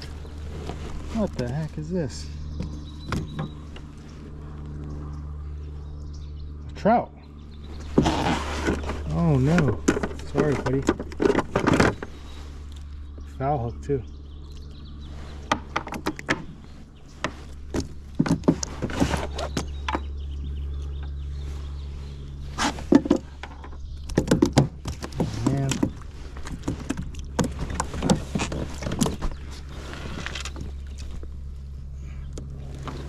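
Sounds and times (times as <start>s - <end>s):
low hum: 0.0s - 33.0s
knocks and clatter on kayak: 7.9s - 12.1s, 17.2s - 20.1s, 22.8s - 29.5s.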